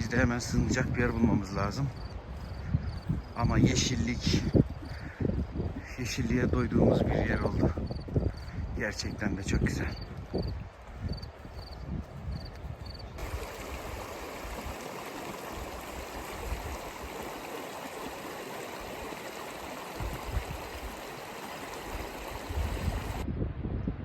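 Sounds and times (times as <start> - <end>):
wind rumble on microphone: 0.0 - 24.0
rushing water: 13.2 - 23.2.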